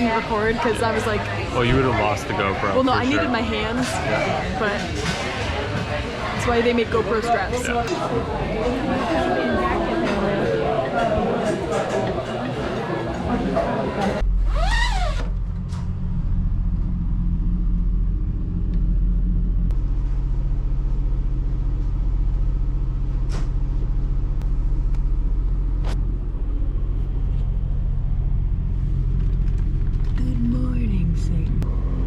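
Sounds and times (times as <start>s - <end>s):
engine running with low rumble: 14.2s - 32.0s.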